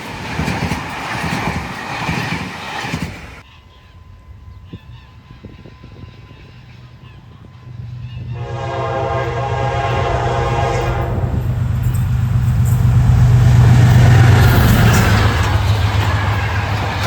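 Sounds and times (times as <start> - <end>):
train rumble and rail noise: 0.0 - 17.0
train horn blast: 7.3 - 17.0.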